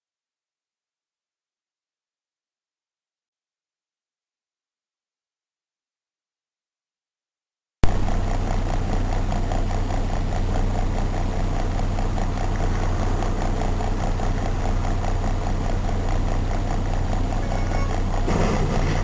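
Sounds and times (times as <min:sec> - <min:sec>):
car engine running: 0:07.8 - 0:19.0.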